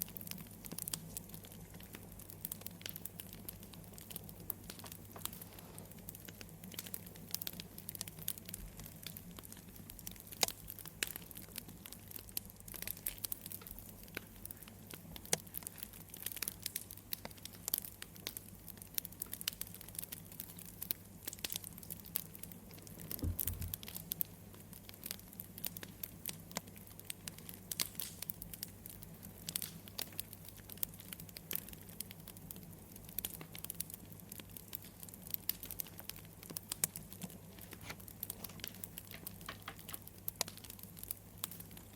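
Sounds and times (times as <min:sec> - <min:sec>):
wood fire crackling and popping: 0:00.0 - 0:41.9
low thump: 0:23.2 - 0:23.8.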